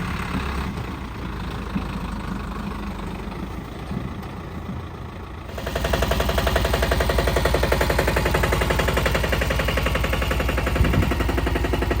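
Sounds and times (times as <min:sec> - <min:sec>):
diesel engine revving up: 0:00.0 - 0:04.2, 0:05.4 - 0:12.0
chugging exhaust pulses: 0:05.6 - 0:12.0.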